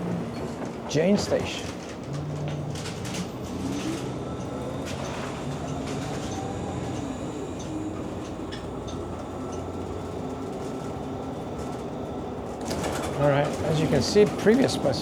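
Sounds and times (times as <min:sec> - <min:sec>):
bus engine rumble and whine: 0:00.0 - 0:15.0.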